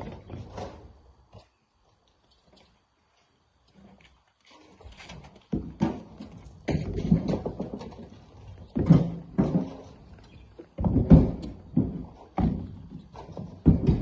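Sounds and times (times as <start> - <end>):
rocks thudding into steel truck bed: 5.5 - 8.2, 8.8 - 10.0, 10.8 - 14.0.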